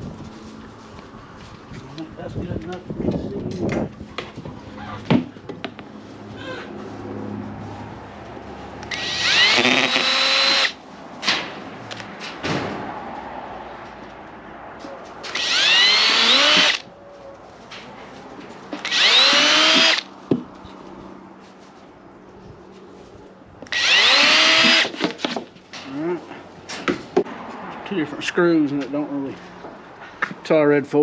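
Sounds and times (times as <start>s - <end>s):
power drill whining: 8.9s - 10.8s, 15.3s - 16.8s, 18.8s - 20.1s, 23.7s - 25.0s.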